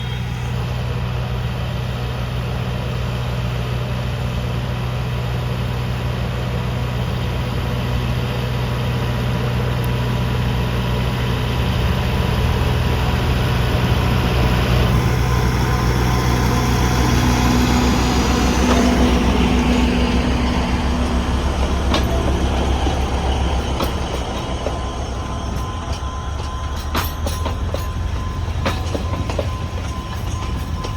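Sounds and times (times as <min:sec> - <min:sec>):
diesel locomotive engine hum: 0:00.0 - 0:30.9.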